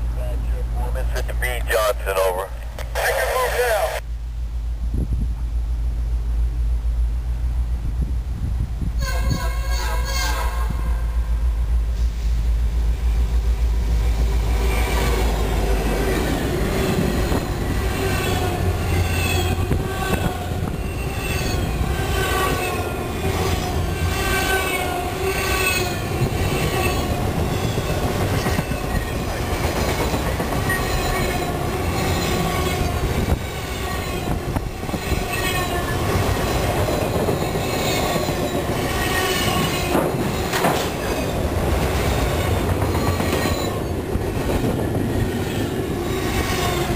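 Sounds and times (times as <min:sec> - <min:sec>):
train rumble: 0:00.0 - 0:46.9
train wheels squealing on rail: 0:16.8 - 0:41.5, 0:42.3 - 0:44.8, 0:45.4 - 0:46.9
wheels clicking over rail joints: 0:25.5 - 0:46.9.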